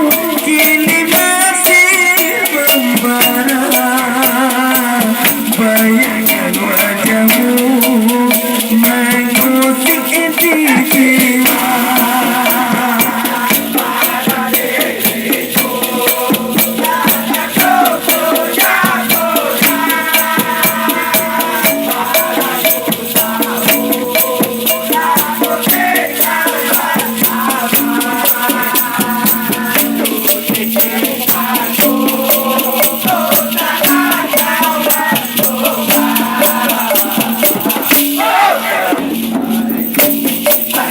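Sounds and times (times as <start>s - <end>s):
pop song melody: 0.0s - 26.9s
shaker rattle: 0.0s - 40.9s.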